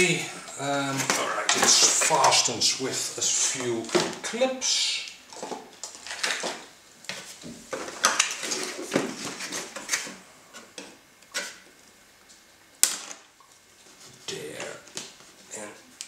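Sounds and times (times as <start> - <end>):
packaging rustling and clattering: 5.3 - 10.2.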